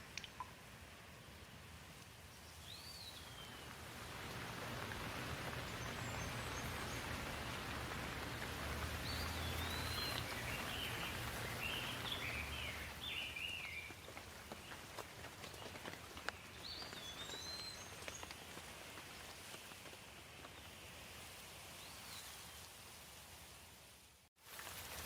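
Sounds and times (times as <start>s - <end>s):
rain falling: 1.8s - 21.9s, 24.4s - 25.0s
birds chirping: 2.5s - 18.5s.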